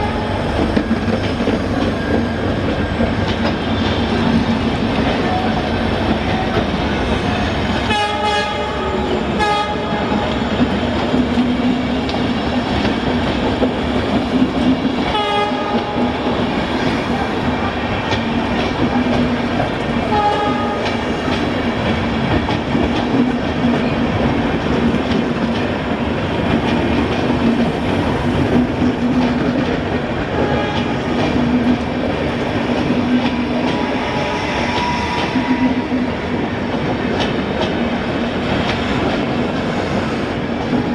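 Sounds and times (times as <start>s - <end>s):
train wheels clattering over rails: 0.0s - 40.9s
short pitched train sounds: 32.6s - 36.5s.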